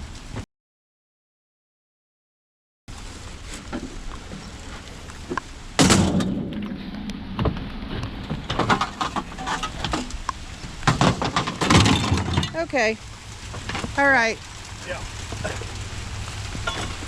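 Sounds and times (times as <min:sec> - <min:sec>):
objects knocking and rattling: 0:08.3 - 0:12.7.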